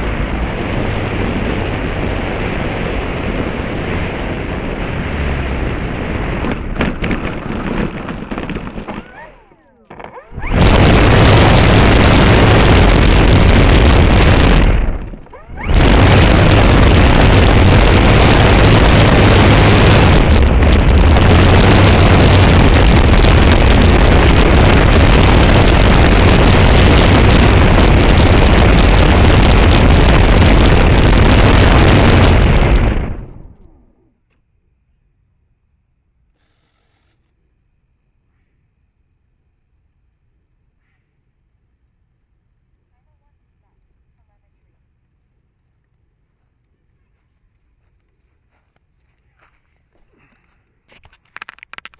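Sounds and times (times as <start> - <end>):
loud distorted wind rush on microphone: 0.0 - 33.9
faint thin whine: 0.0 - 34.4.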